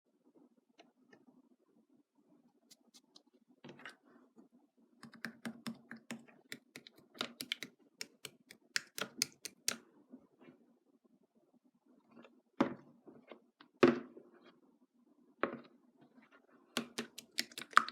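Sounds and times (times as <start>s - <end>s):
rapid irregular clicks and taps: 5.0s - 9.8s, 16.8s - 17.9s.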